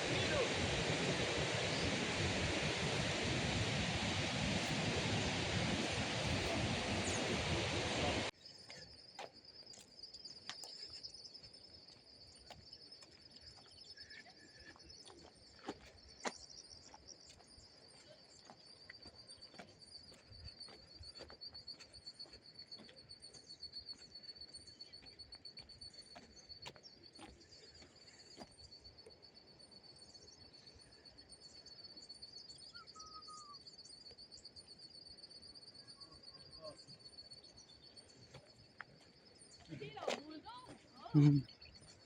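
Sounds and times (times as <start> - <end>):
waterfall rushing: 0.0 - 8.3.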